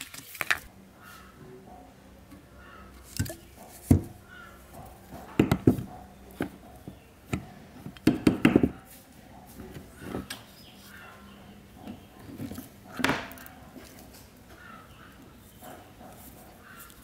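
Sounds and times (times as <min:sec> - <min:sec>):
tools knocking and clattering: 0:03.2 - 0:08.8.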